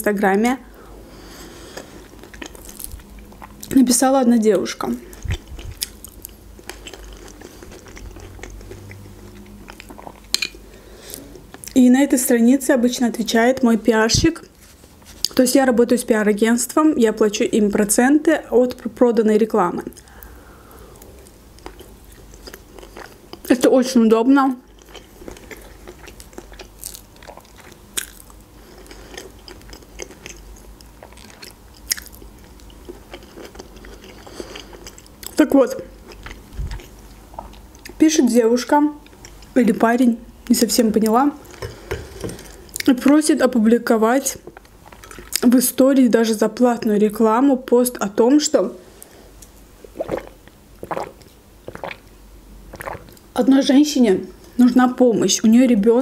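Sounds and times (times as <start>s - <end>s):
wet chewing mouth sounds: 1.7s - 3.7s, 5.0s - 10.5s, 24.6s - 35.4s, 36.0s - 38.0s, 49.4s - 52.1s, 52.7s - 53.3s.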